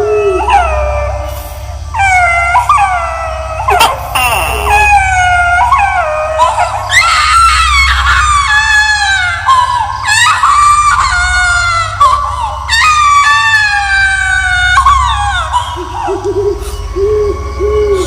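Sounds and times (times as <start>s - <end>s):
steady low drone: 0.0s - 18.0s
baby crying: 3.7s - 7.0s.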